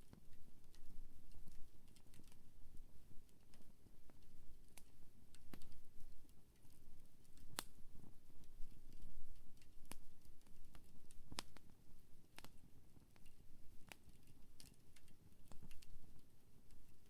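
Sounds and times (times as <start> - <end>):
campfire crackling and popping: 0.1 - 16.9.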